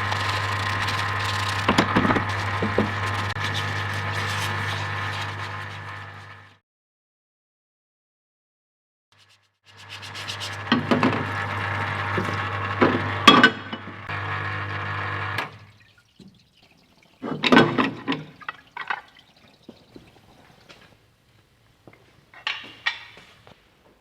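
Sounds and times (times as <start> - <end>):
liquid pouring from nozzle: 0.0 - 5.3
pump humming: 0.0 - 6.5, 9.8 - 20.6.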